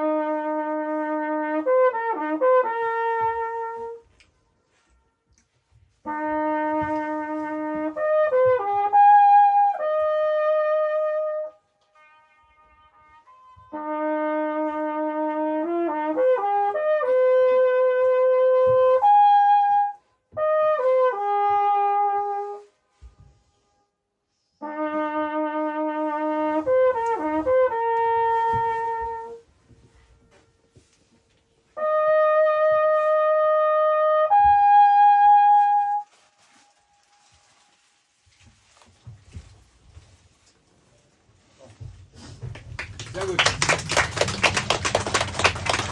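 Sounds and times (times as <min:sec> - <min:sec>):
trumpet echo off rock wall: 0:00.0 - 0:04.1, 0:06.0 - 0:23.9, 0:24.6 - 0:30.8, 0:31.7 - 0:36.1
trumpet playing slow phrases: 0:00.0 - 0:05.0, 0:06.0 - 0:23.9, 0:24.6 - 0:30.0, 0:31.6 - 0:37.6.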